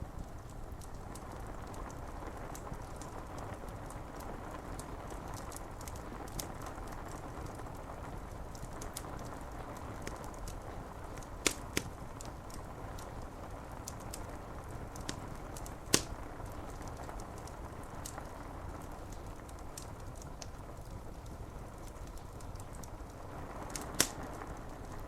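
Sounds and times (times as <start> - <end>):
rain on window glass: 0.0 - 25.0
wood fire crackling: 0.0 - 25.0
fire pops: 0.1 - 25.0.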